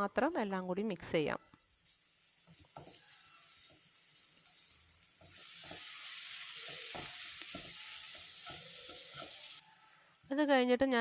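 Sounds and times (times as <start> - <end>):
spices sizzling in hot oil: 0.0 - 11.0
spatula scraping a pan: 1.8 - 9.8.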